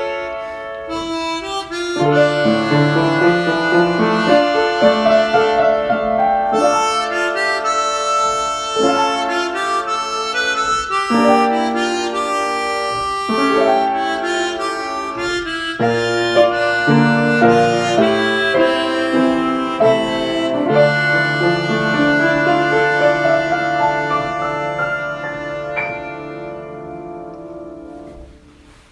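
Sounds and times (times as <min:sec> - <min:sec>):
harmonica playing chords: 0:00.0 - 0:28.3.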